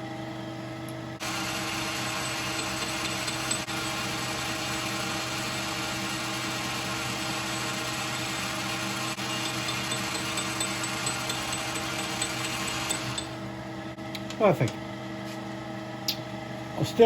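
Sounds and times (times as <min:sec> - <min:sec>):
lathe motor hum: 0:01.2 - 0:14.0.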